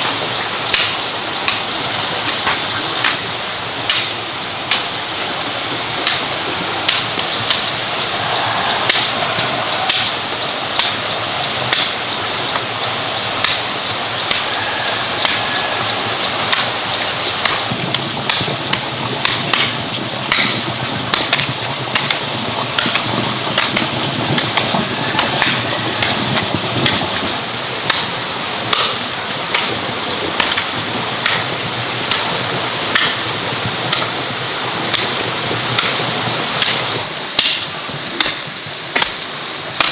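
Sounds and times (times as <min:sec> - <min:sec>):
steady rushing hiss: 0:00.0 - 0:39.9
sharp knocks: 0:17.4 - 0:28.1.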